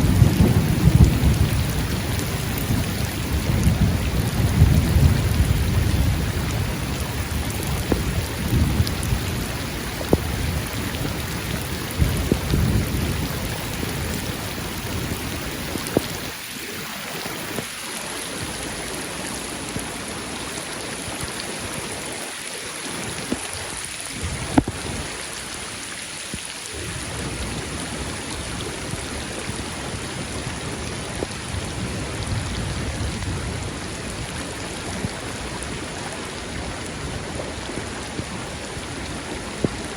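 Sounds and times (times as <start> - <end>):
thunder rumble: 0.0 - 16.4, 26.7 - 39.9
raindrop ticks: 0.0 - 29.6
steady rain: 0.0 - 39.9.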